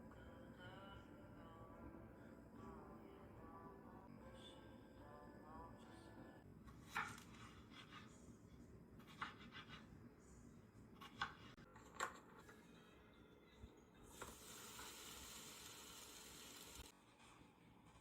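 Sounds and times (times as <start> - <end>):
background music: 0.0 - 6.4.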